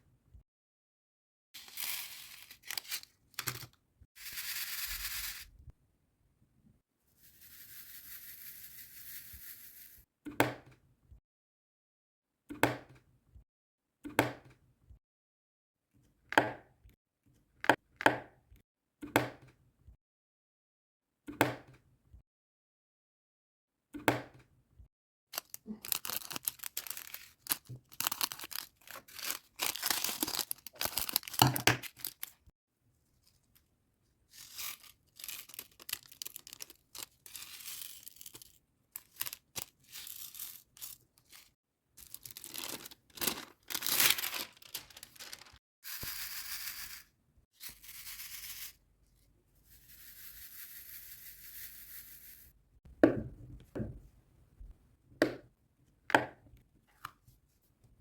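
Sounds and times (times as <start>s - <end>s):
plastic packaging crackling: 25.4s - 32.4s, 34.4s - 45.6s.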